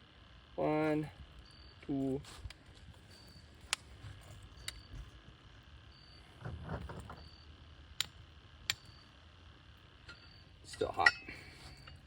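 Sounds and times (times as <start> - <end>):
insect chirping: 1.4 - 1.8, 5.9 - 6.2, 10.1 - 12.0
coals rustling: 6.2 - 12.0.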